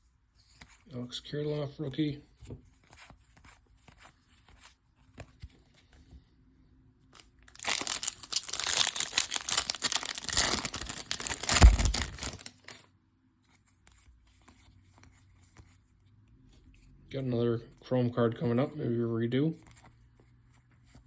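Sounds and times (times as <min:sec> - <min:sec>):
foil wrapper tearing and crinkling: 0:07.2 - 0:12.8.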